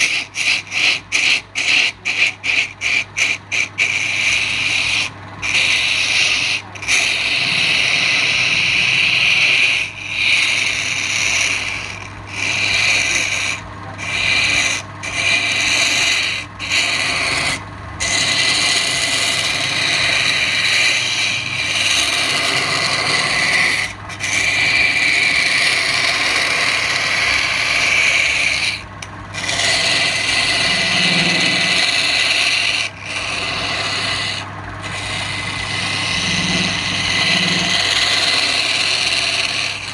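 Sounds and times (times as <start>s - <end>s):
lathe motor hum: 0.0s - 39.9s
tool rasping on turning wood: 0.0s - 39.9s.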